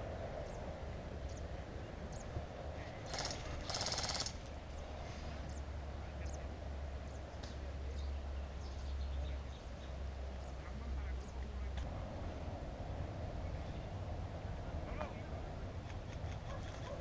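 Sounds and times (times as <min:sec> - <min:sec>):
steady low rumble: 0:00.0 - 0:17.0
airsoft rifle full-auto bursts: 0:03.1 - 0:04.5.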